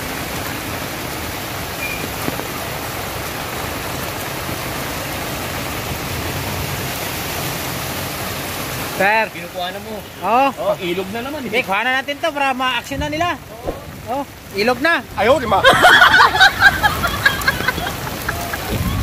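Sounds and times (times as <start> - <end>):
heavy rain hissing: 0.0 - 19.0.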